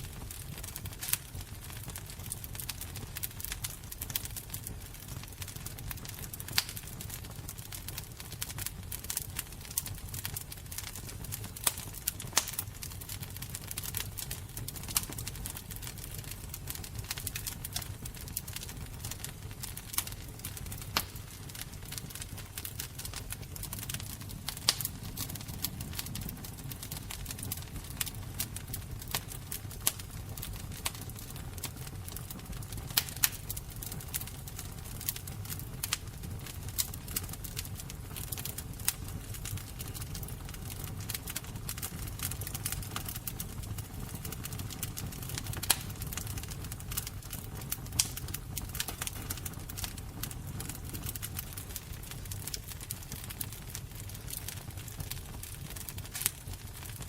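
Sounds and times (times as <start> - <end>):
fire crackling with pops: 0.0 - 57.0.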